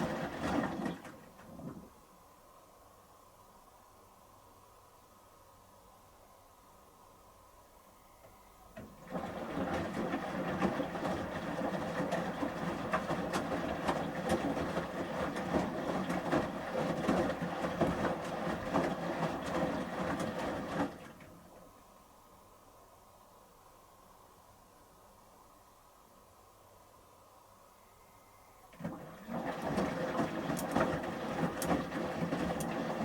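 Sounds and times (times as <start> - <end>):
washing machine drum tumbling: 0.0 - 1.9, 8.8 - 21.4, 28.8 - 33.0.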